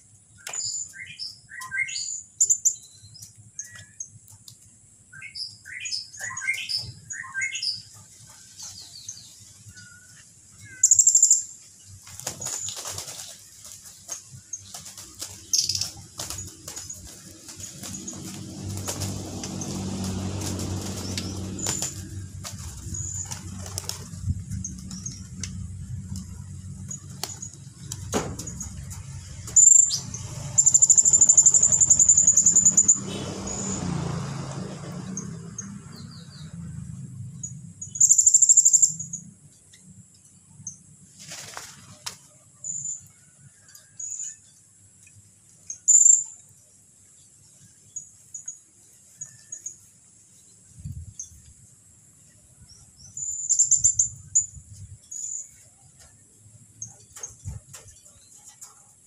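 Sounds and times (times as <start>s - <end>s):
low hum: 15.9s - 33.2s
songbird fast trills: 29.6s - 33.8s, 53.0s - 55.6s.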